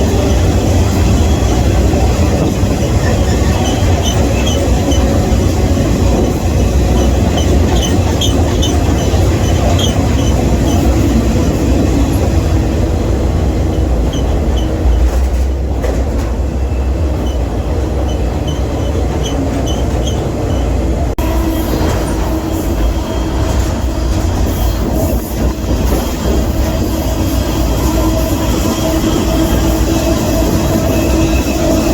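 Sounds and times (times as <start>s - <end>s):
train wheels rumbling on rails: 0.0s - 31.9s.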